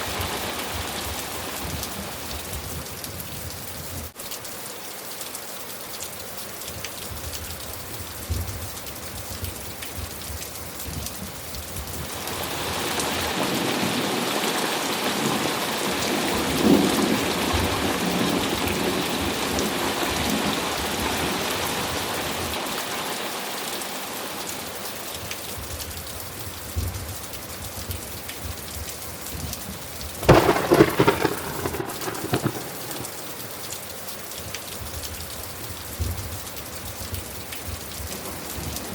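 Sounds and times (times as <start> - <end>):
steady rain falling: 0.0 - 38.9
rumble of thunder: 30.2 - 33.6
crackling thunder clap: 30.2 - 33.8.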